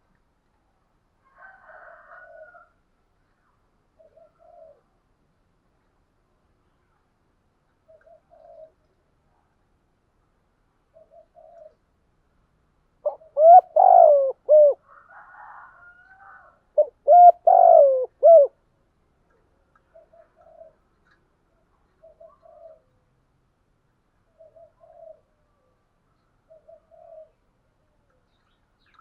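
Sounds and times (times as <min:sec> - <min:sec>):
dove cooing: 0:04.0 - 0:04.9, 0:07.9 - 0:08.8, 0:11.0 - 0:11.8, 0:13.0 - 0:15.8, 0:16.8 - 0:18.6, 0:19.9 - 0:20.8, 0:22.0 - 0:22.9, 0:24.4 - 0:25.4, 0:26.5 - 0:27.4.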